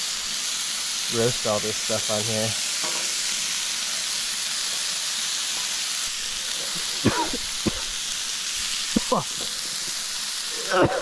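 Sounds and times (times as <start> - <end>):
food sizzling on a griddle: 0.0 - 11.0
person coughing: 7.0 - 7.9, 10.6 - 11.0.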